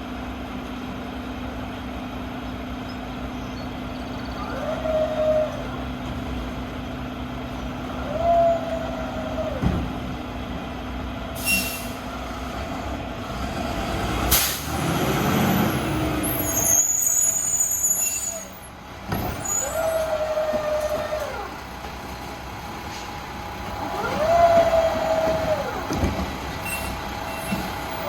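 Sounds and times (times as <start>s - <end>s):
garbage truck engine running: 0.0s - 28.0s
air brakes hissing: 11.4s - 12.2s, 14.3s - 14.8s, 15.6s - 21.5s, 22.8s - 23.4s, 26.6s - 28.0s
hydraulic arm whine: 22.9s - 28.0s.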